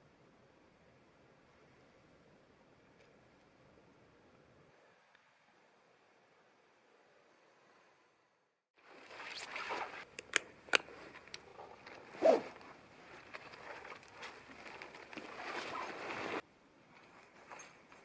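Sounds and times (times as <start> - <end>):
rustling and handling noise: 8.8 - 18.0.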